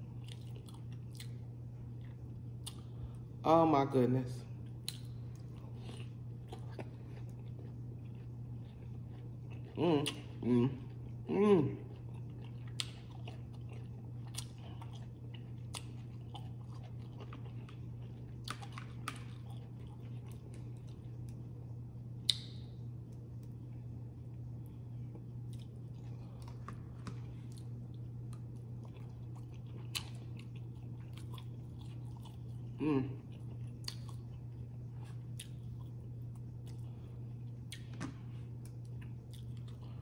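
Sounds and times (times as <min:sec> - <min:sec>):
chewing and biting food: 0:00.0 - 0:03.3, 0:04.6 - 0:40.0
steady low hum: 0:00.0 - 0:40.0
wet smacks and clicks: 0:04.8 - 0:05.5, 0:22.2 - 0:22.6.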